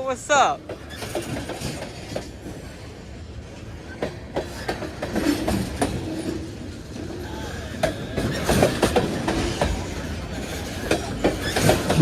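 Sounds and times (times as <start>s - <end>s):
freight train rumbling past: 0.0s - 12.0s
wheels clacking over rail joints: 0.6s - 2.9s, 3.6s - 12.0s.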